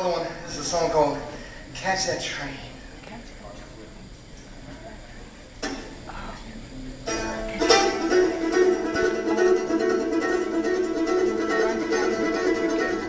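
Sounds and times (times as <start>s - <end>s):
plucked acoustic string instrument: 7.0s - 13.0s.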